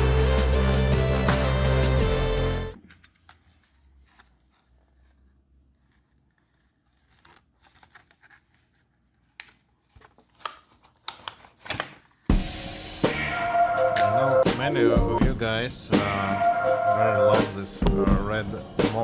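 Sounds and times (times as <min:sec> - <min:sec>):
card and plastic tearing: 0:05.8 - 0:12.3
packaging rustling: 0:05.8 - 0:12.3.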